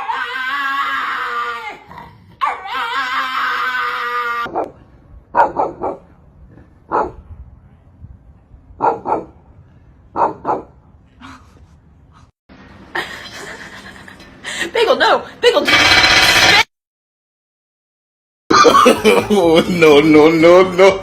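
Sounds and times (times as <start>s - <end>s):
dog crying: 2.4s - 4.7s.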